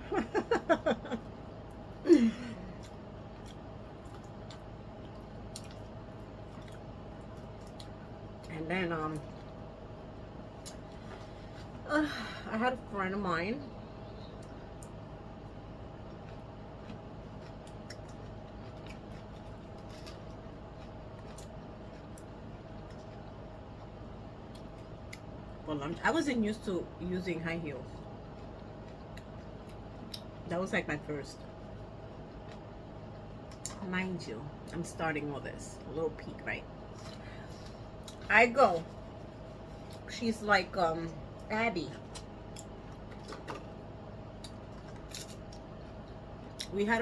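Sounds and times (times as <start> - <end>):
low room hum: 0.0 - 47.0
person chewing: 2.8 - 8.0, 16.0 - 25.3.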